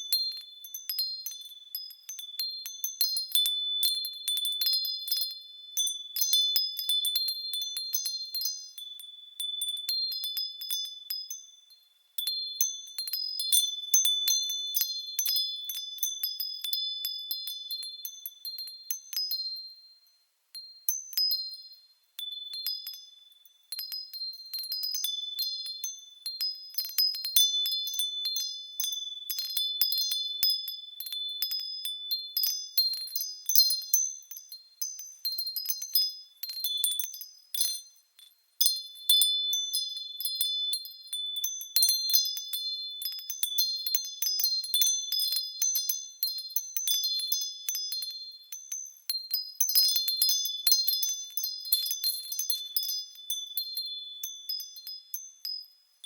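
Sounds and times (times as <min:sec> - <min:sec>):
wind chimes ringing: 0:20.6 - 0:56.0.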